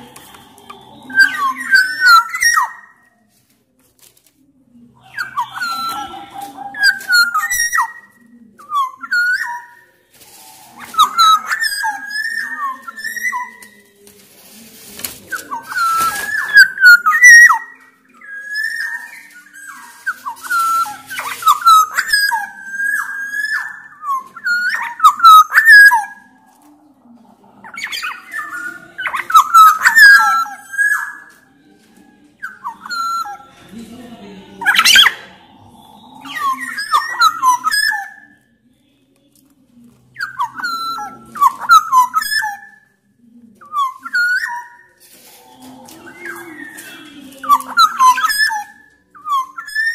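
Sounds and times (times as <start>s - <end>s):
oriole whistled song: 0.0s - 3.3s, 5.0s - 13.9s, 14.8s - 26.6s, 27.6s - 33.9s, 34.6s - 38.5s, 40.2s - 43.0s, 43.6s - 49.9s
fast high bird chatter: 5.0s - 26.3s, 27.6s - 31.4s, 34.6s - 38.4s, 43.6s - 49.9s.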